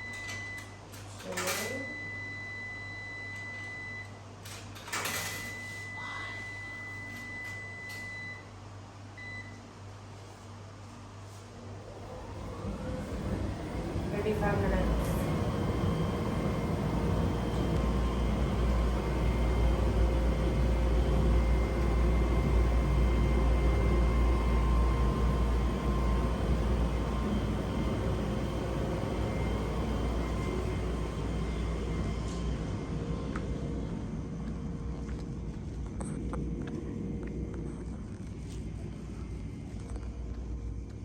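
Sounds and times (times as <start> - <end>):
vehicle engine rumble with whine: 12.0 - 41.0.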